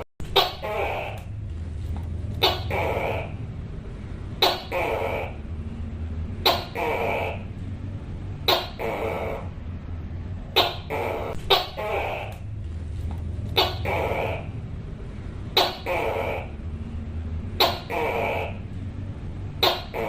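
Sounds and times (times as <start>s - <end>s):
steady low hum: 0.0s - 20.0s
gecko calling: 0.2s - 1.4s, 2.3s - 3.6s, 4.4s - 5.6s, 6.4s - 7.6s, 8.4s - 9.7s, 10.5s - 12.6s, 13.4s - 14.7s, 15.5s - 16.8s, 17.5s - 18.8s, 19.5s - 20.0s.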